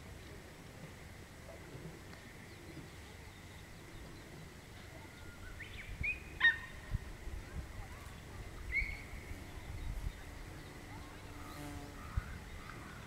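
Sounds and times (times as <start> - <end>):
sharp whistled bird calls: 5.1 - 6.8, 8.7 - 10.0.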